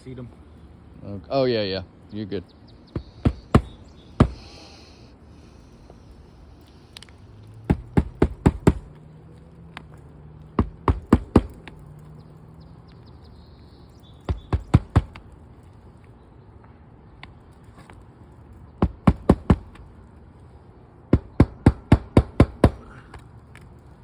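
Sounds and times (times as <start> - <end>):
hammer striking nails: 2.9 - 4.6, 7.7 - 8.9, 10.6 - 11.8, 14.3 - 15.2, 18.8 - 19.8, 21.1 - 23.0.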